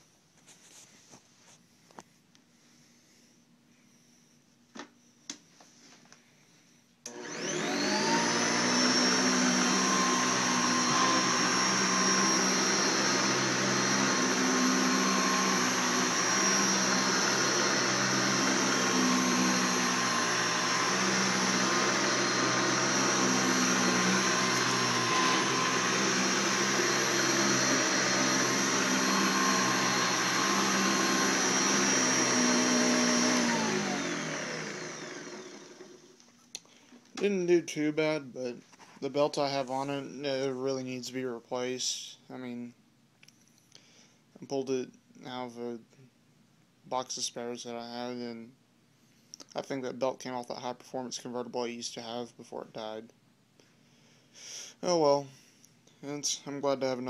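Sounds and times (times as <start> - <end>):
vacuum cleaner motor whine: 7.1 - 36.3.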